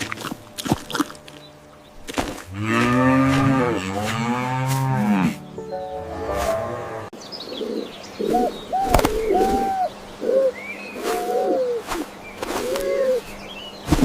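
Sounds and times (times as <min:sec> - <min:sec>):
pigeons cooing: 0:06.6 - 0:13.4
small birds chirping faintly: 0:06.8 - 0:14.0.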